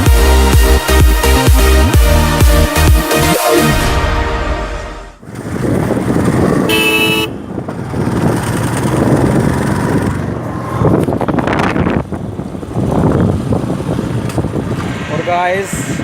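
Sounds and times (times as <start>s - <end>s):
road traffic noise: 4.8s - 16.0s
vehicle horn: 6.6s - 7.5s.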